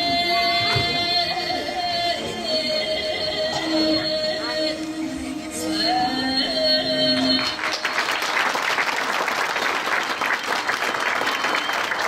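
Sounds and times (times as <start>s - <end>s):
audience applauding: 7.2s - 12.0s.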